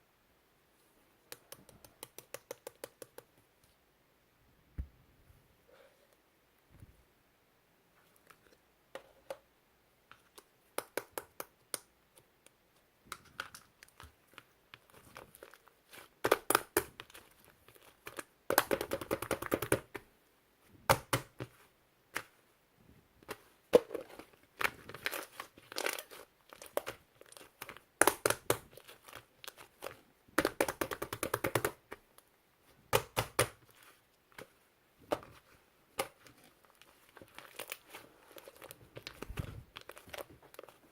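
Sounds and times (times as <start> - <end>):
slime popping and crackling: 23.8 - 31.8.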